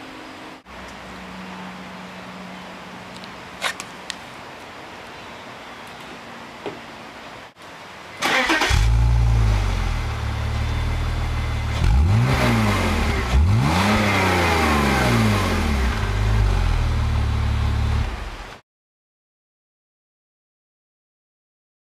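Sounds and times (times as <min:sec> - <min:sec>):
car engine starting: 0:08.2 - 0:18.5
engine revving: 0:08.2 - 0:18.5
engine idling: 0:15.0 - 0:18.5.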